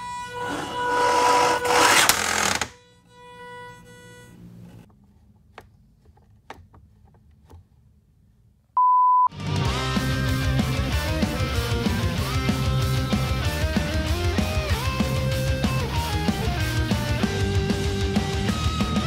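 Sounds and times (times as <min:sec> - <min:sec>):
shredder motor whining and grinding: 0:00.3 - 0:02.7
short high beep: 0:08.8 - 0:09.3
music: 0:09.3 - 0:19.0.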